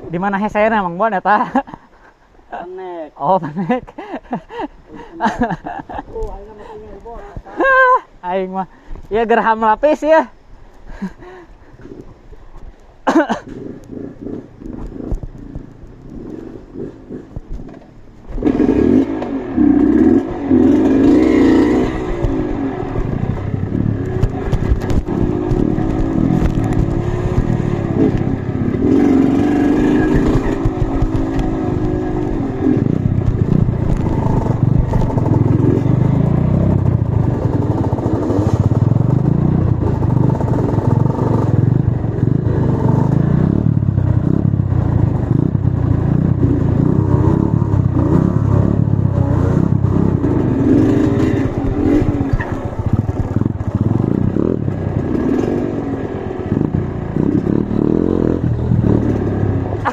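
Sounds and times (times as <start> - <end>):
motorcycle engine revving: 13.4 - 59.9.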